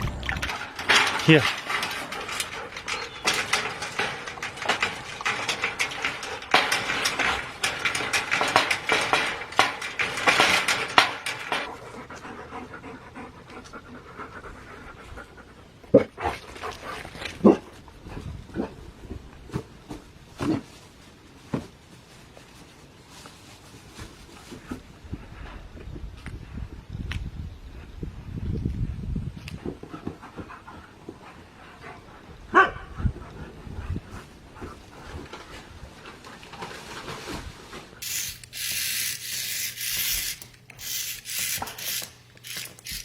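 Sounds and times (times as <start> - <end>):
dog panting: 11.7 - 15.7.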